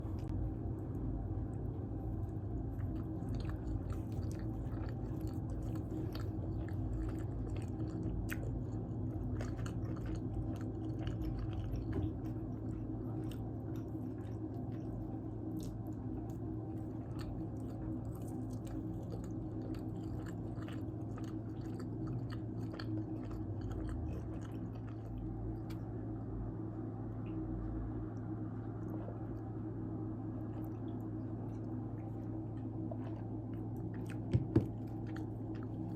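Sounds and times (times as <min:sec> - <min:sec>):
person chewing pizza: 0:00.0 - 0:26.2, 0:27.2 - 0:35.9
low hum: 0:00.0 - 0:35.9.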